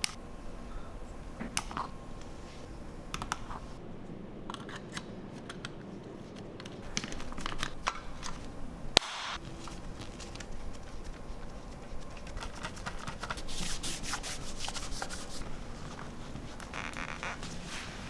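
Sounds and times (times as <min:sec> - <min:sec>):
plastic and metal parts clicking: 0:06.6 - 0:08.5.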